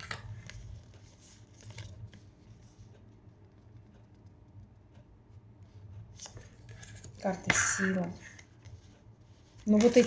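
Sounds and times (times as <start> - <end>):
low steady hum: 0.0 - 10.0
cards tapping and rustling: 9.4 - 10.0.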